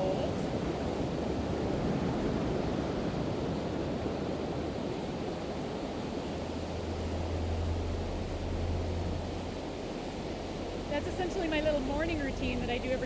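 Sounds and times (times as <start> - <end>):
ocean surf washing on beach: 0.0 - 13.0
low steady drone: 5.2 - 13.0.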